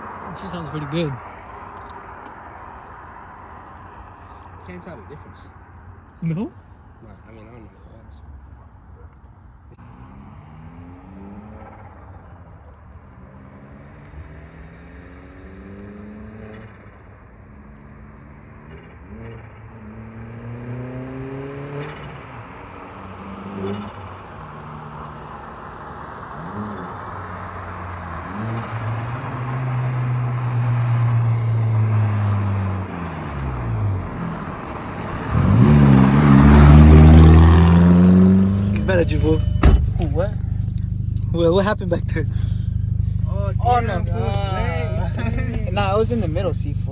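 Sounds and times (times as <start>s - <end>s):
car engine accelerating: 9.2s - 46.9s
hard engine rev: 26.3s - 46.9s.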